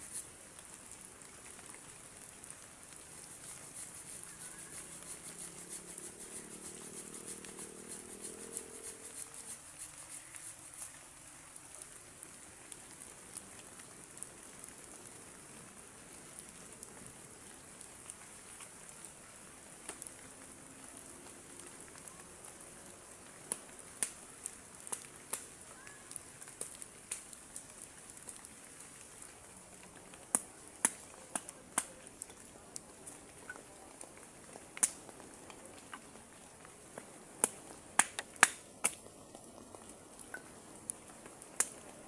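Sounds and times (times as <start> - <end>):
heavy rain hissing: 0.0 - 26.6
sharp taps and clicks: 37.4 - 39.0.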